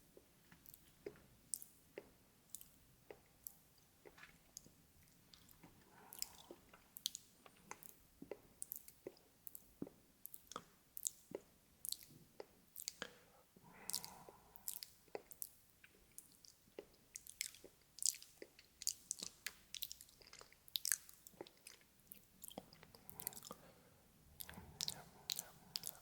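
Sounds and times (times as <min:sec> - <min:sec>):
wet mouth clicks and smacks: 0:13.9 - 0:23.6, 0:24.4 - 0:26.0.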